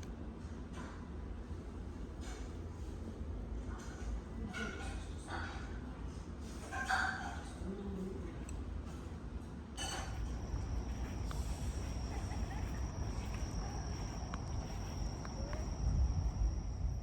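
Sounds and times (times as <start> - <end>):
insects droning: 9.9 - 17.0.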